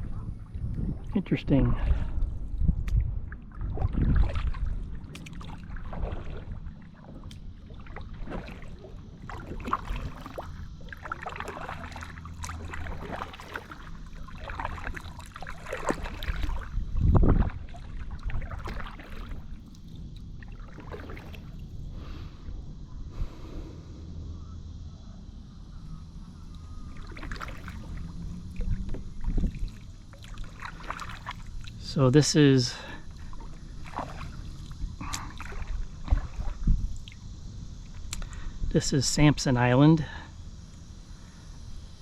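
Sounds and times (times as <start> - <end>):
paddle splashing water: 2.9 - 22.4, 26.5 - 37.3.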